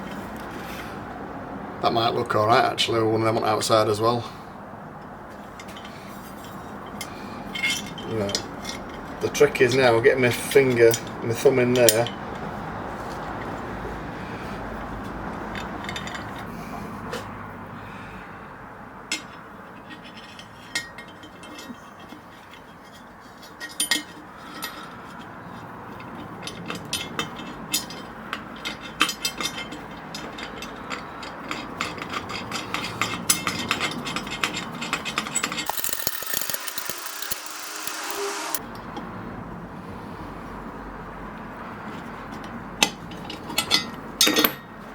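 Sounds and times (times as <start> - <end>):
small metal parts clinking: 32.3 - 38.6
metal parts rubbing: 34.2 - 38.6.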